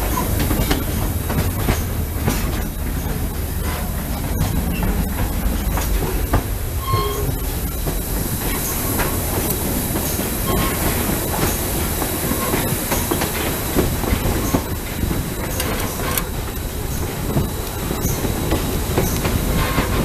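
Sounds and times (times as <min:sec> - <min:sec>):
train wheels clattering on track: 0:00.0 - 0:20.0
high wheel squeals: 0:04.4 - 0:13.4.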